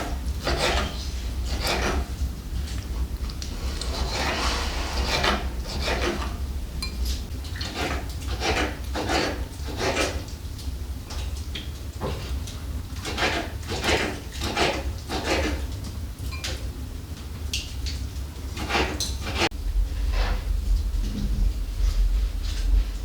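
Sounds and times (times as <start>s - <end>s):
steady low hum: 0.0s - 8.4s, 19.2s - 23.0s
rubbing or scraping strokes: 3.5s - 6.2s.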